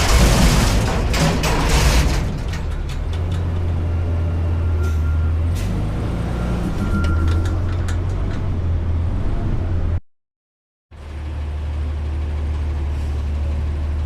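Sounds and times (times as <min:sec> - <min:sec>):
diesel engine running: 0:11.0 - 0:14.0.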